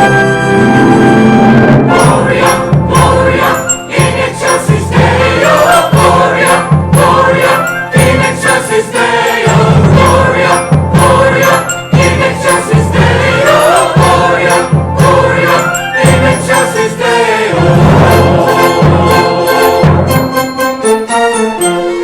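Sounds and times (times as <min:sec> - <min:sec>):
choir and orchestra christmas song: 0:00.0 - 0:22.0
choir and orchestra performing: 0:00.0 - 0:22.0.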